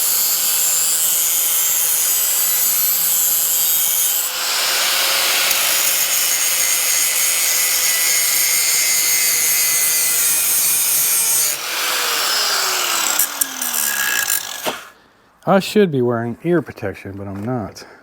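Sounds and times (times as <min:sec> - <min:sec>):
power grinder grinding steel: 0:00.0 - 0:15.0.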